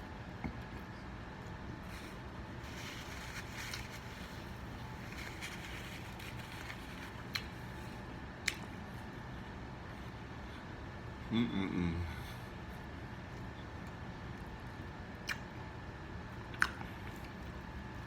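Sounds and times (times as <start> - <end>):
low room hum: 0.0 - 18.0
man chewing food: 0.4 - 9.2, 16.2 - 18.0.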